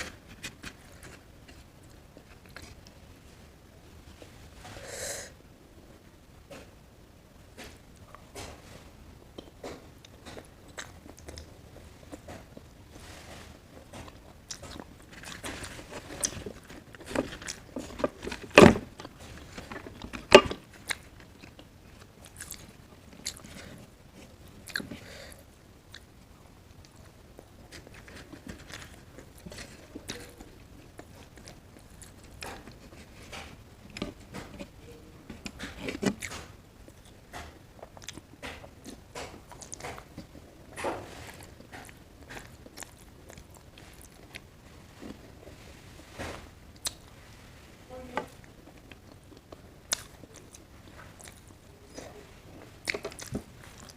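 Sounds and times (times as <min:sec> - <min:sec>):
chewing and wet smacking: 0:13.9 - 0:18.4, 0:20.8 - 0:23.7, 0:24.5 - 0:24.9, 0:37.8 - 0:40.4, 0:41.3 - 0:44.5, 0:48.4 - 0:52.2, 0:52.8 - 0:53.9.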